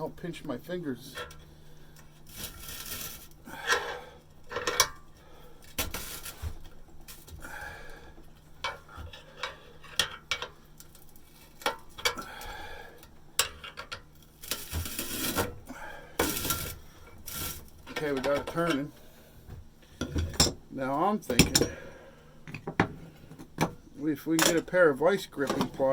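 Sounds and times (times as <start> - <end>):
metal tools clanking on pipe: 1.0 - 1.5, 3.5 - 5.1, 8.6 - 11.0, 13.4 - 15.5, 17.8 - 19.0, 20.0 - 20.6, 21.2 - 22.7, 24.3 - 24.8.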